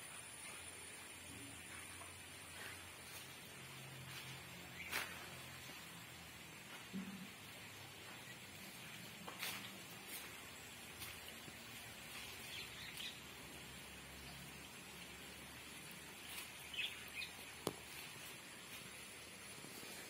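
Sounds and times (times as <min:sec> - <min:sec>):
birds chirping: 0:00.2 - 0:05.9, 0:07.9 - 0:13.4, 0:16.2 - 0:18.2.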